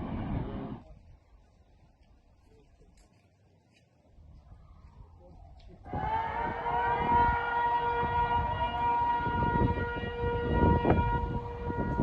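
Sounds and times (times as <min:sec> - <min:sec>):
warning siren wailing: 0:05.9 - 0:12.0.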